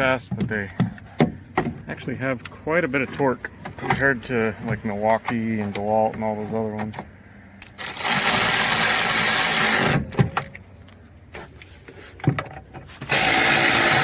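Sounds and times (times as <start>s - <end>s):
cordless power tool driving bolts: 7.6s - 10.6s, 13.0s - 14.0s.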